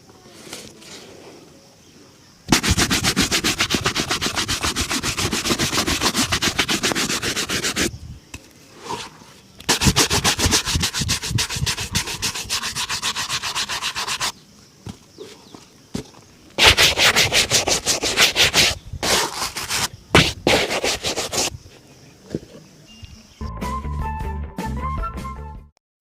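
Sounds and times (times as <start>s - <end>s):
shoe being buffed: 2.5s - 7.9s, 9.7s - 14.3s, 16.6s - 21.5s.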